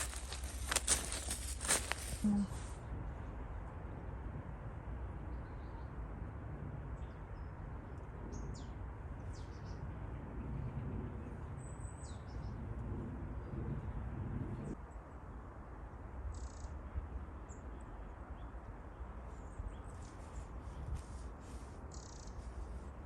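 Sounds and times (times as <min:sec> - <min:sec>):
small birds calling: 0:00.0 - 0:02.7.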